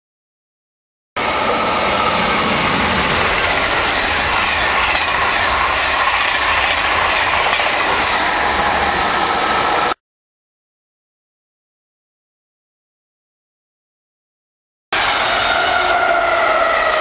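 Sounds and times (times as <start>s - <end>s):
high-speed train passing: 1.2s - 10.0s, 15.0s - 17.0s.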